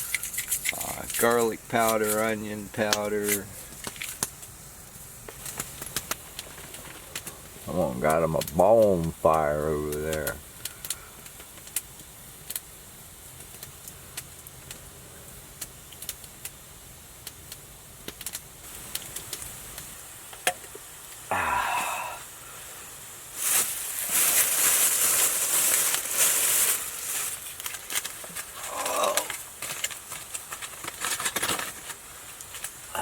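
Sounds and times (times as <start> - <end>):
loud hissing: 0.0 - 11.7, 18.7 - 29.9, 32.8 - 33.0
campfire crackling: 0.0 - 33.0.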